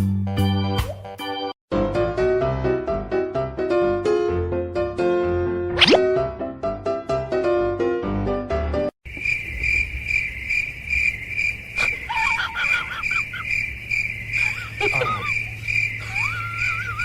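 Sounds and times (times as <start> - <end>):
insects chirping: 9.0 - 17.0.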